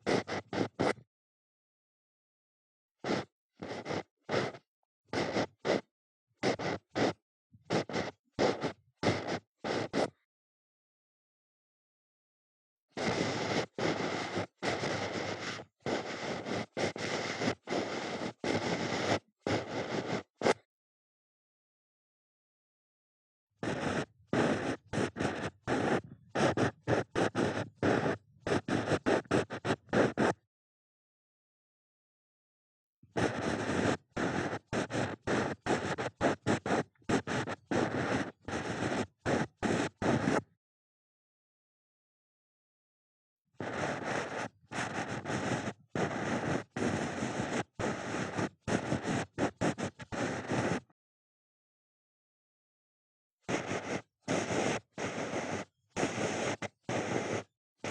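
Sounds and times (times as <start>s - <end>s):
ear pick scratching in ear: 0.1s - 1.0s, 5.2s - 10.2s, 16.4s - 20.6s, 23.6s - 30.4s, 33.2s - 40.5s, 43.6s - 50.9s, 53.5s - 57.9s.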